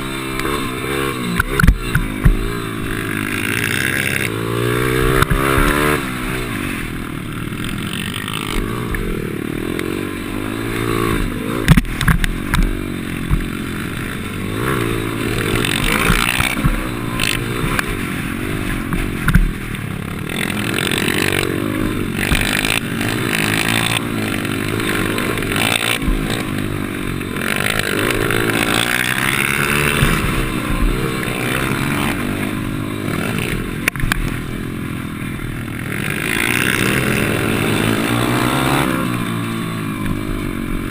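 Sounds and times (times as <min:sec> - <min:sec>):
small motorcycle engine revving: 0:00.0 - 0:40.9
sharp knocks and clatters: 0:11.6 - 0:14.1, 0:18.7 - 0:19.8.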